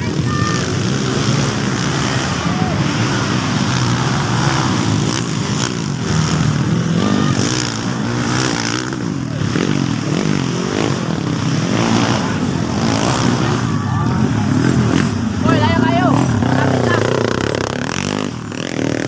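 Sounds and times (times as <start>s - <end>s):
motocross bike engines revving: 0.0s - 19.0s.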